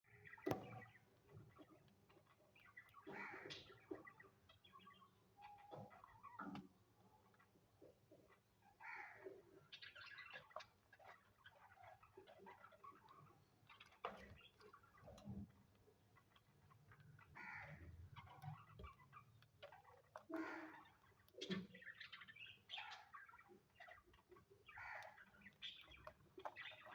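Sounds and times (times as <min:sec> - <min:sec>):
cockatiels chattering: 0:09.7 - 0:15.4, 0:16.1 - 0:26.9.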